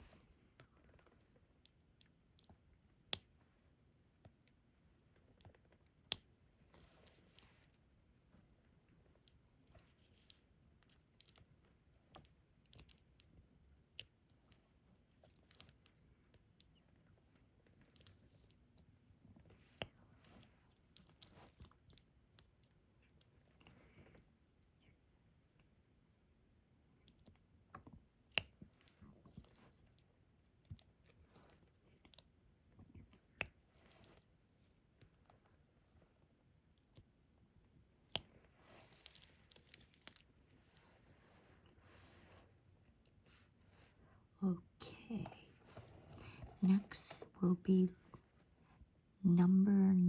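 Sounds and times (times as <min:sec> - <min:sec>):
soft rustling: 0:38.2 - 0:44.3, 0:44.9 - 0:47.4.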